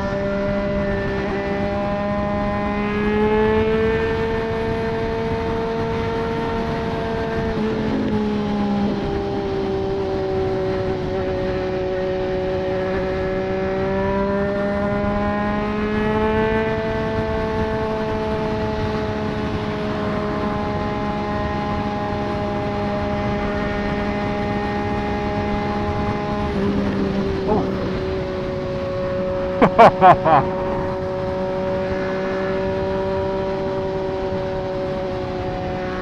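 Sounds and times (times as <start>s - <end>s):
motorcycle engine cruising: 0.0s - 36.0s
steady rushing noise: 25.3s - 29.4s.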